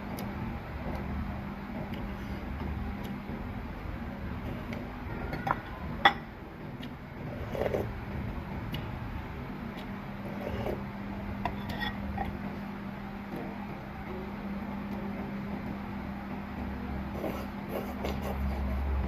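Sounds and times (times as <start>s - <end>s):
steady low hum: 0.0s - 19.0s
utensils clinking against bowl: 11.4s - 12.3s.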